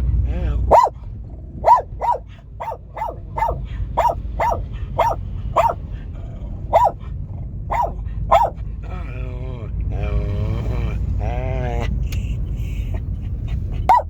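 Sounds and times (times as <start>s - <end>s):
dog barking: 0.6s - 1.0s, 1.6s - 5.8s, 6.6s - 7.0s, 7.7s - 8.6s.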